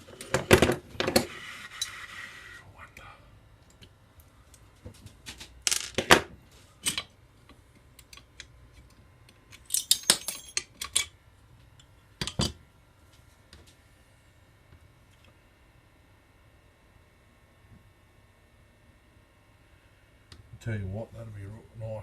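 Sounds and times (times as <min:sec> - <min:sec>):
metal tools clinking: 0:09.5 - 0:11.1.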